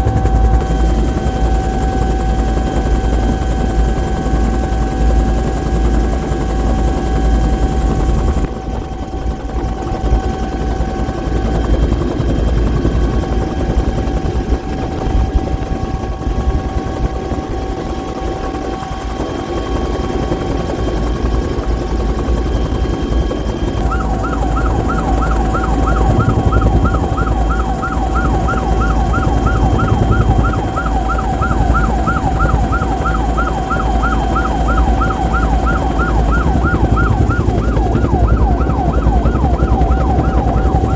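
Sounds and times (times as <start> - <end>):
helicopter turbine engine running: 0.0 - 40.9.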